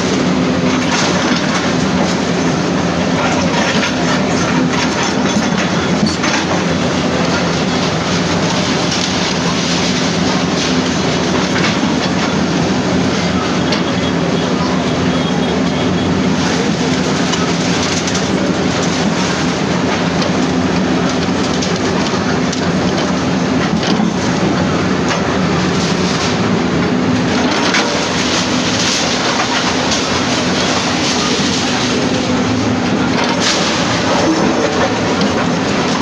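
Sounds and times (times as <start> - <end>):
heavy machinery engine running: 0.0 - 36.0
rattling and clanks: 21.1 - 36.0.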